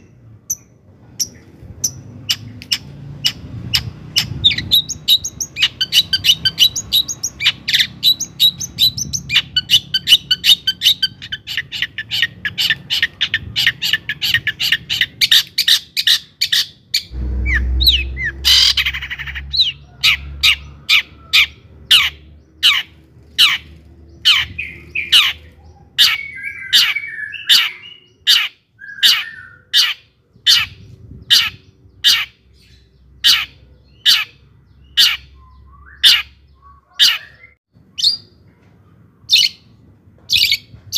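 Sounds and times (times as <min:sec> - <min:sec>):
harsh rasping squawk: 0:09.3 - 0:23.6
shrike chattering song: 0:17.0 - 0:23.7
low rumble: 0:17.1 - 0:25.7.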